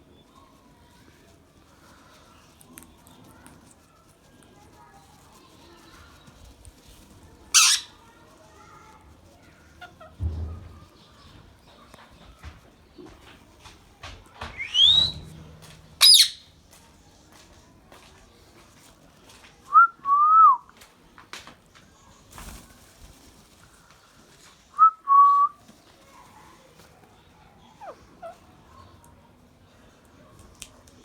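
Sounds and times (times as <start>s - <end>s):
parakeet piercing shriek: 7.5s - 7.9s, 14.6s - 15.2s, 16.0s - 16.4s
parakeet whistling: 14.6s - 15.2s, 16.0s - 16.4s.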